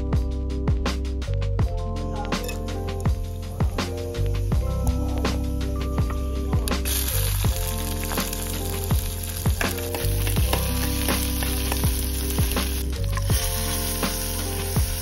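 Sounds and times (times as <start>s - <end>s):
background music with beat: 0.0s - 15.0s
spices sizzling in hot oil: 6.8s - 15.0s.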